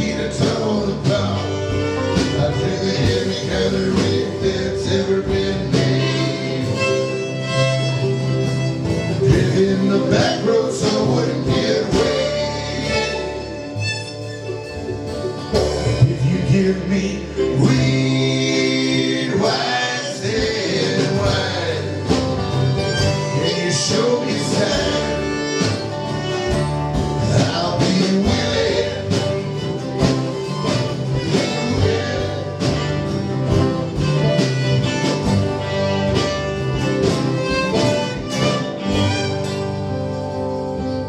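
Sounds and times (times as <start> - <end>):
person singing: 0.0 - 8.2, 9.1 - 13.8, 15.5 - 35.8
bluegrass band playing: 0.0 - 41.0
strummed and picked guitar: 0.0 - 41.0.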